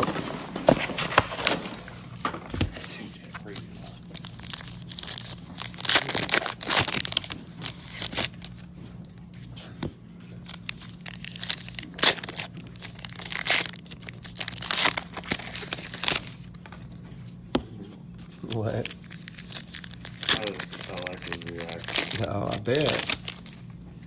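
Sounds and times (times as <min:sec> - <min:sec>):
foil packs crinkling and tearing: 0:00.9 - 0:02.2, 0:02.8 - 0:08.7, 0:10.4 - 0:16.7, 0:18.3 - 0:23.7
cards being handled: 0:01.0 - 0:24.0.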